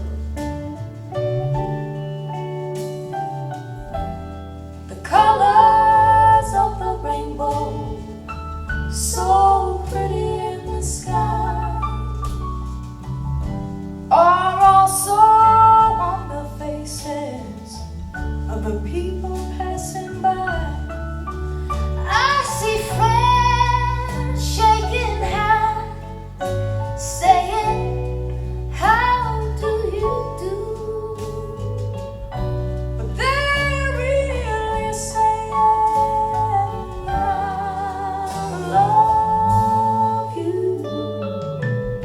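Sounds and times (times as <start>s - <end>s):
bass notes: 0.0s - 42.0s
folk song singing: 4.9s - 12.8s, 21.6s - 26.4s, 33.0s - 41.6s.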